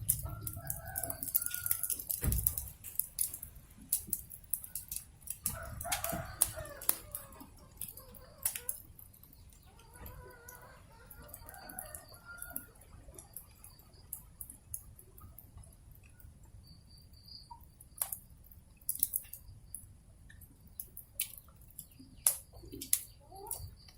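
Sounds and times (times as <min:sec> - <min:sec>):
rooster crowing: 0:00.0 - 0:02.2, 0:05.4 - 0:08.5, 0:10.0 - 0:12.8
wood fire crackling and popping: 0:00.0 - 0:09.7, 0:11.1 - 0:16.4, 0:17.5 - 0:23.9.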